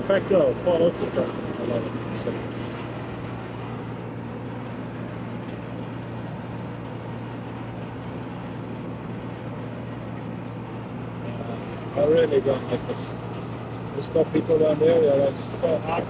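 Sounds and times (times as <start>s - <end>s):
air conditioning unit running: 0.0s - 16.0s.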